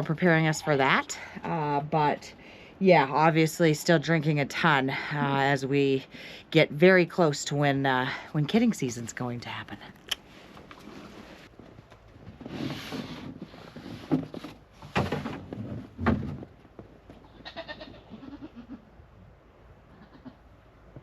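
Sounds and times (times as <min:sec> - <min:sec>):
rustling: 0:10.1 - 0:18.1
goat bleat: 0:17.2 - 0:18.9, 0:19.9 - 0:20.4.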